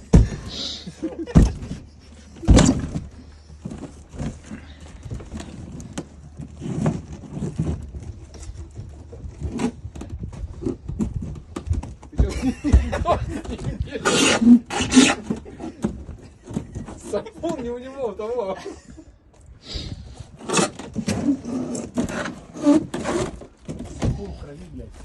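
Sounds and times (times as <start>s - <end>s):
hard objects clunking and rattling: 0.0s - 17.9s, 20.2s - 24.5s.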